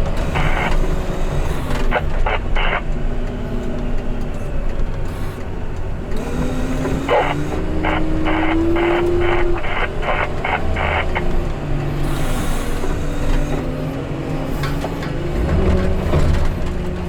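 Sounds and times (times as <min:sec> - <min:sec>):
diesel engine revving: 0:00.0 - 0:17.0
back-up alarm beeping: 0:00.1 - 0:14.2.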